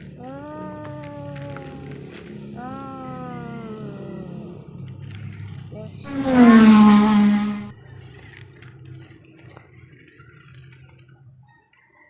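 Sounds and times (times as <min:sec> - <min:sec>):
low hum: 0:00.0 - 0:07.8
drawn-out vocal sound: 0:05.8 - 0:07.7.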